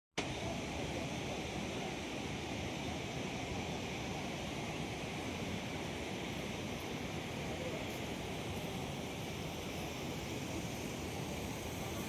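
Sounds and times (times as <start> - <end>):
steady rushing noise: 0.2 - 12.0.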